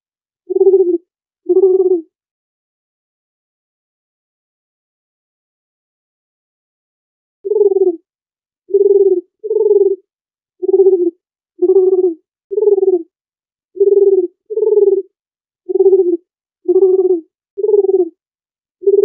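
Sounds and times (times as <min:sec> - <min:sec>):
dove cooing: 0:00.5 - 0:02.1, 0:07.5 - 0:08.0, 0:08.7 - 0:10.0, 0:10.6 - 0:13.1, 0:13.8 - 0:15.1, 0:15.7 - 0:18.2.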